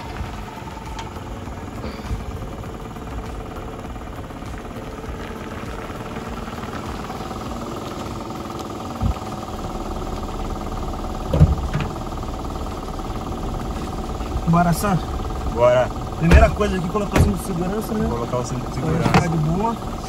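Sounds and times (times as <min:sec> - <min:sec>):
car engine idling: 0:00.0 - 0:20.0
dull thump: 0:11.3 - 0:12.0, 0:16.2 - 0:17.5.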